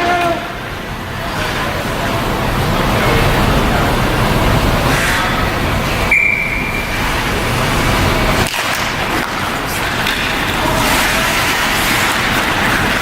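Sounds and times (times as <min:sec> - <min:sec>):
crowd and rink noise: 0:00.0 - 0:13.0
referee's whistle blast: 0:06.1 - 0:06.9.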